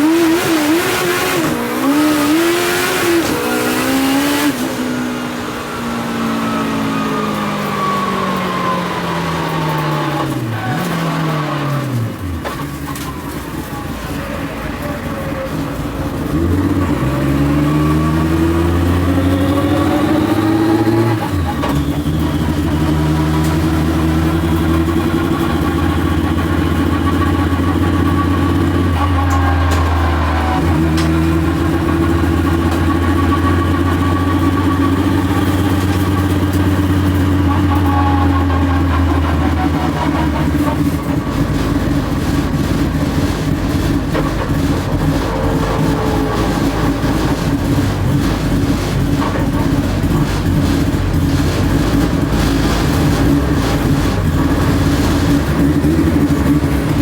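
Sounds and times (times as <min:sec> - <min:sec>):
drag car engine idling: 0:20.5 - 0:57.0.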